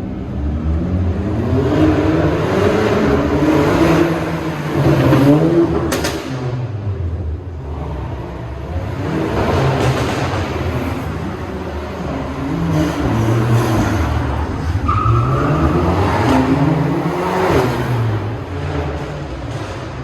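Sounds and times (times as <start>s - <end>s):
car engine revving hard: 0.7s - 6.4s, 7.6s - 19.9s.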